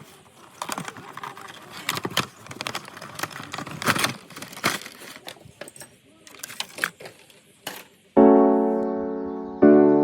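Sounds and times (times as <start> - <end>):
cardboard and plastic crinkling: 0.0 - 7.8.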